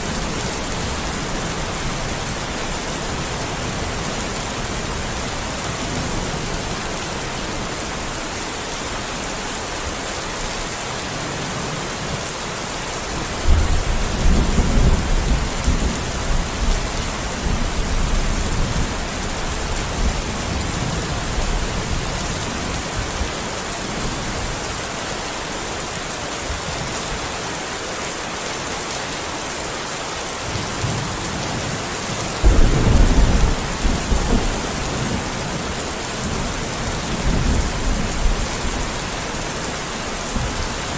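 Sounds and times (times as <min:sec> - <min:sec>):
steady rain falling: 0:00.0 - 0:40.9
thunder rumbling: 0:32.4 - 0:38.9.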